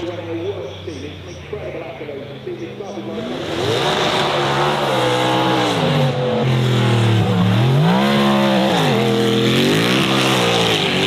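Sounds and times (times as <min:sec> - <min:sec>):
racing car engine revving: 0:02.8 - 0:11.0.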